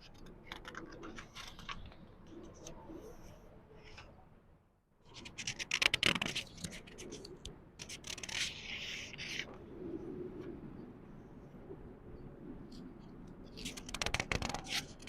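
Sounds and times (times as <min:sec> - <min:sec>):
book page rustling: 0:05.2 - 0:09.5, 0:13.6 - 0:15.0.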